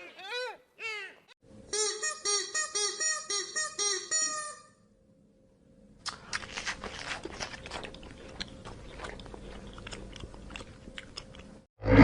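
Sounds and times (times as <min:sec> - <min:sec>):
animal chewing crunches: 0:06.0 - 0:11.6.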